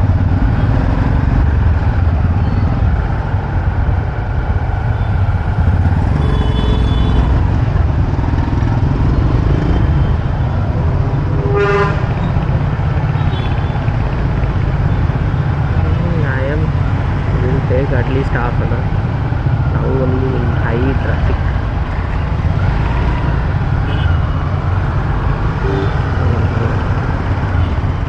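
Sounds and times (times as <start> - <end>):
motorcycle engine: 0.0 - 15.9
vehicle horns honking: 6.1 - 7.4, 11.4 - 12.2, 25.6 - 26.2.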